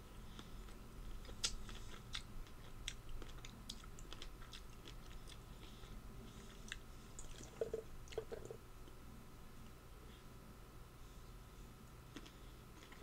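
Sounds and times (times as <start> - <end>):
person chewing food: 0.3 - 8.6, 12.0 - 13.0.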